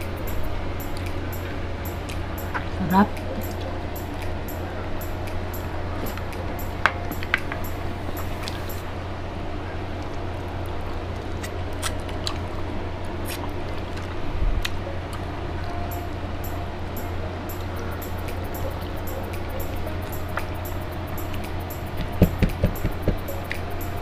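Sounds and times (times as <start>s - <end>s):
steady low hum: 0.0s - 24.0s
chewing and mouth sounds: 10.0s - 15.3s.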